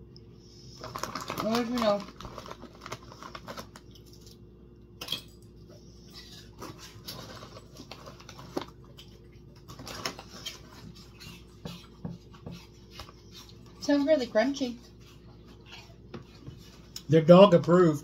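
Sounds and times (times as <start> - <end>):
crisps being chewed: 0.7 - 4.5, 6.2 - 11.9.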